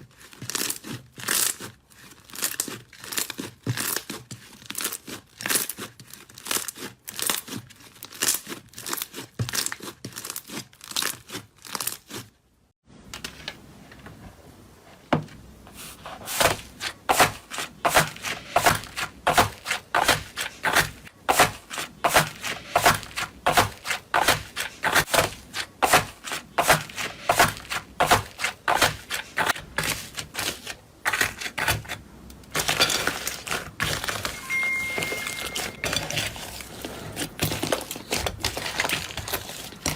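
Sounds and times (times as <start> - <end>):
crunchy material being crushed: 0.0 - 12.4, 36.0 - 39.9.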